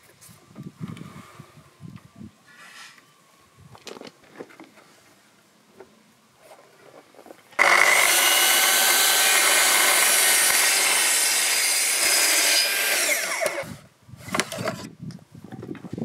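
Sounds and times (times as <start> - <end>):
saw blade winding down: 7.6 - 13.7
circular saw cutting wood: 7.6 - 13.8.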